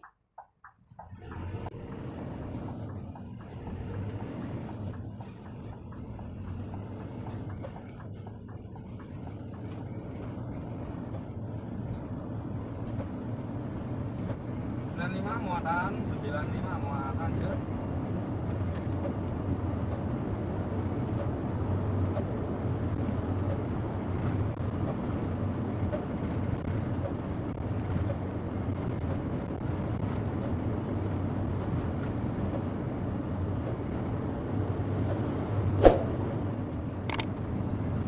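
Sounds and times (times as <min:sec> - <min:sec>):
truck engine and road drone: 0:00.0 - 0:38.0
sharp click: 0:37.1 - 0:37.3.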